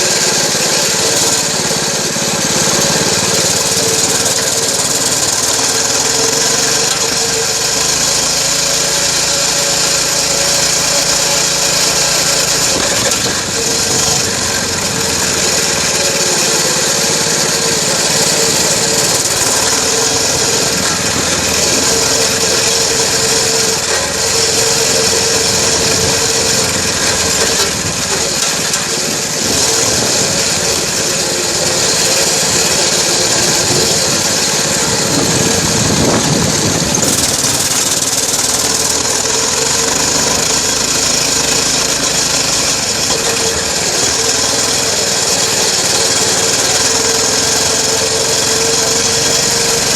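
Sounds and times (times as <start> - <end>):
dirt bike engine revving: 0.0 - 49.9
wind noise: 33.3 - 38.0.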